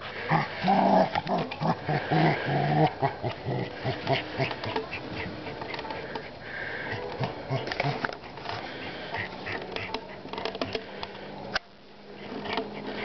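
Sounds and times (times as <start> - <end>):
dog growling: 0.2 - 8.4.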